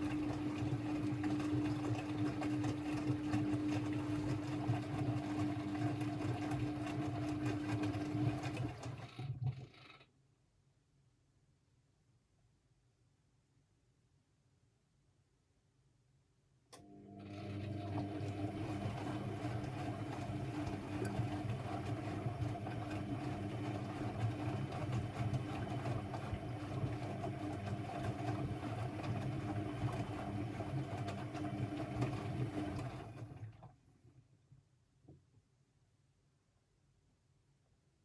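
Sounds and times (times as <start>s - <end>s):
washing machine motor running: 0.0s - 9.8s, 16.8s - 33.7s.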